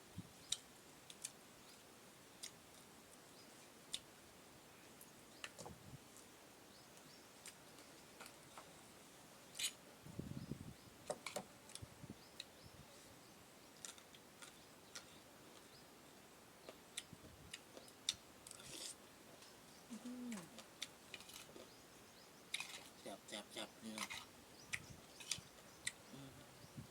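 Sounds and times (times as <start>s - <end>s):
person eating: 17.0s - 19.0s.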